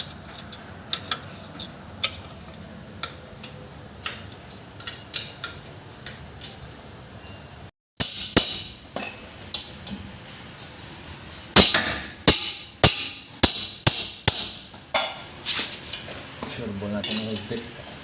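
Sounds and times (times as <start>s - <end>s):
hammer striking metal: 8.0s - 9.9s, 11.6s - 15.3s.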